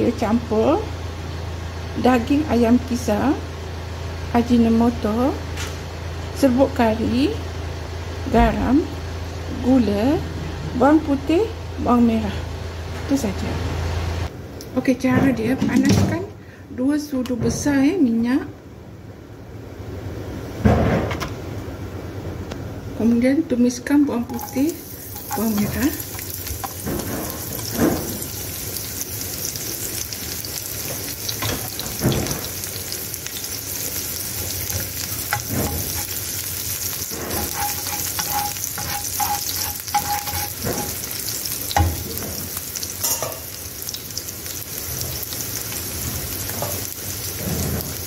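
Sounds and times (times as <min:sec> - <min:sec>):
garlic sizzling in hot oil: 0:24.3 - 0:48.0
metal spatula scraping pan: 0:37.1 - 0:41.0.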